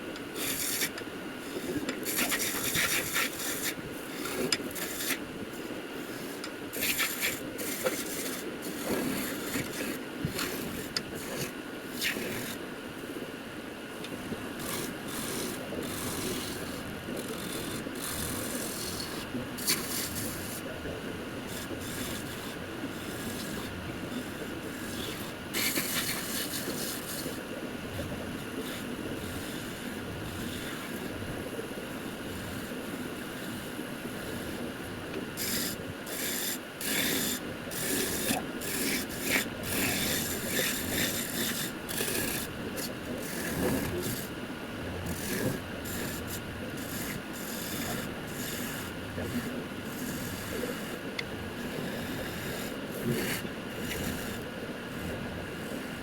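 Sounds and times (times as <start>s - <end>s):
wood lathe running: 35.4s - 43.4s, 45.1s - 50.9s
turning tool cutting spinning wood: 35.4s - 44.3s, 45.0s - 54.5s.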